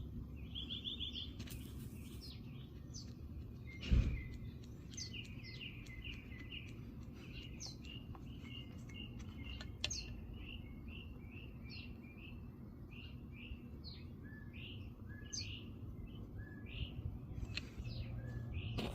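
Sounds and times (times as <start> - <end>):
small birds chirping: 0.0 - 18.9
steady low rumble: 1.6 - 10.6.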